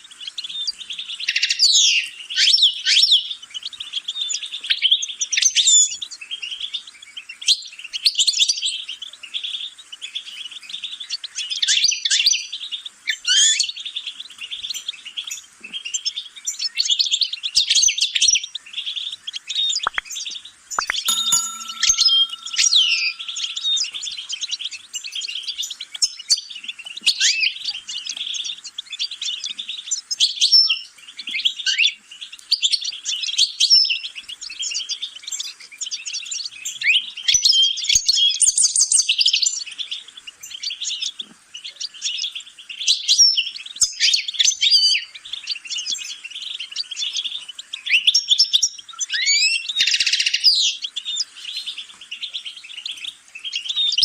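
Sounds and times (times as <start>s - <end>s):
songbird singing: 20.8s - 24.4s.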